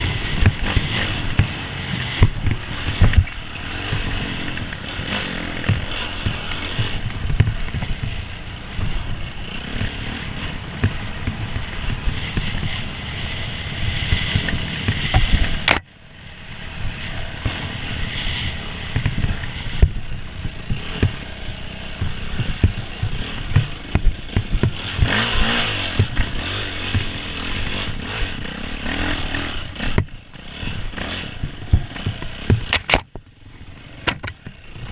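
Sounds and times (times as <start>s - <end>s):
motorcycle riding off-road: 0.0s - 34.9s
low thumps and knocks: 5.6s - 9.2s, 21.9s - 25.2s.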